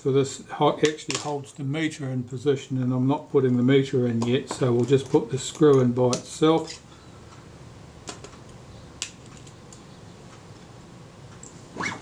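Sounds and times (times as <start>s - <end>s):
short rising squeak: 11.7s - 12.0s.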